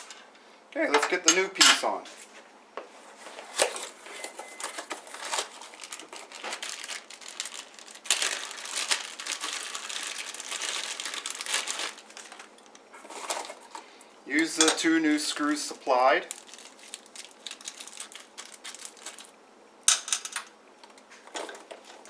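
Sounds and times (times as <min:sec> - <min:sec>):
plastic packaging crinkling: 0:03.3 - 0:13.9, 0:15.3 - 0:19.4.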